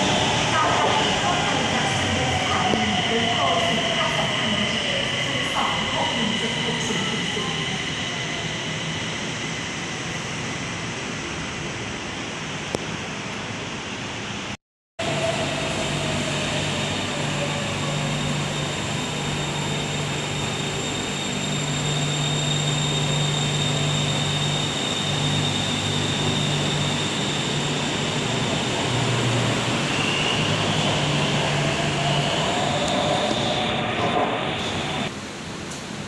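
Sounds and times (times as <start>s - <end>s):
electric train low hum: 0.0s - 36.0s
train whine: 15.0s - 36.0s.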